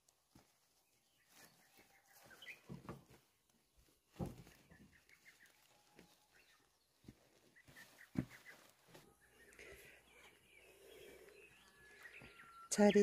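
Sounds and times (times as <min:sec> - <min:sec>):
distant bird calling: 0:04.5 - 0:13.0.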